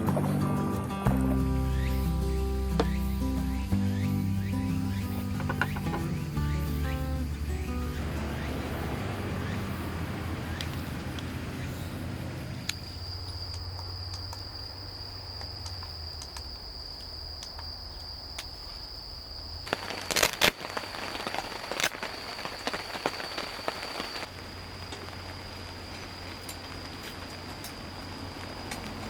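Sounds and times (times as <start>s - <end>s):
cricket trilling: 0.9s - 29.0s
sharp clicks and crackles: 15.4s - 18.6s, 19.6s - 29.0s.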